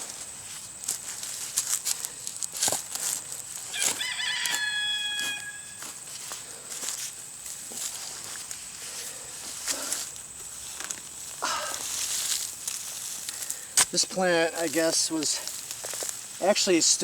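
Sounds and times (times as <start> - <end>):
digging in soil: 0.0 - 17.0
rooster crowing: 3.7 - 6.0.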